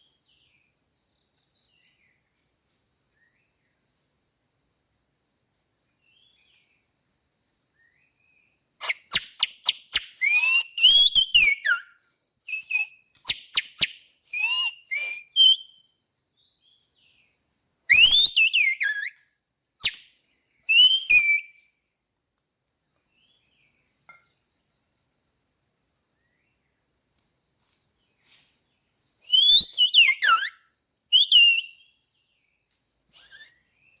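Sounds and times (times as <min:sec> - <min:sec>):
high insect drone: 0:00.0 - 0:34.0
shrill grass blade whistles: 0:08.8 - 0:11.9, 0:12.5 - 0:15.8, 0:17.9 - 0:19.2, 0:19.8 - 0:20.1, 0:20.7 - 0:21.6, 0:29.2 - 0:31.8, 0:33.1 - 0:33.7.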